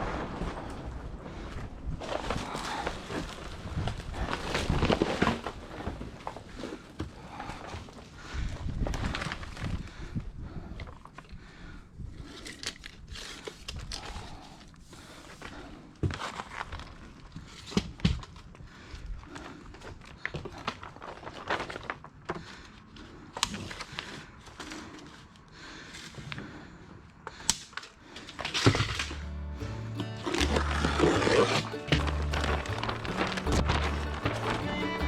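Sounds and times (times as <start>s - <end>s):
plastic sheeting crinkling: 0.0s - 6.6s, 8.9s - 9.8s, 30.3s - 35.0s.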